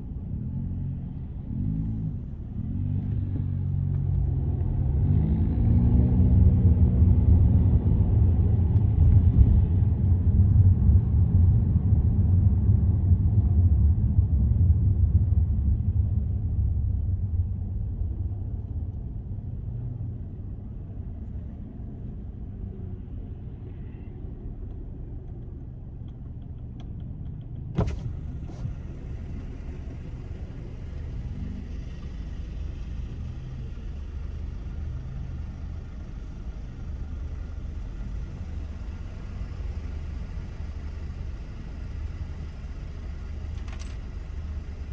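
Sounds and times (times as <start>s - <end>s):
car road and engine rumble: 0.0s - 44.9s.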